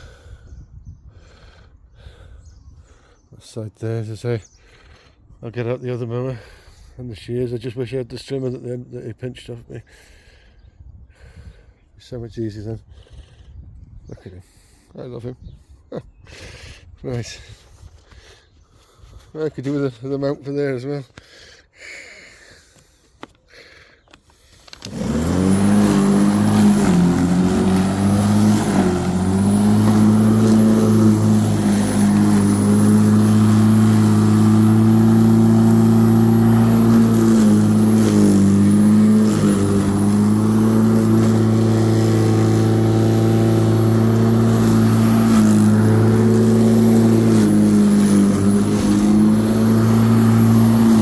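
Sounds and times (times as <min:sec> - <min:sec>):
electric lawnmower whining: 0:24.7 - 0:51.0.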